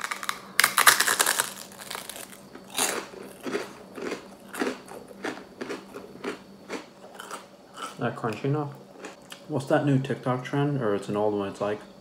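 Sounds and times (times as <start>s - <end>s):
crunchy chewing: 0.0s - 9.5s.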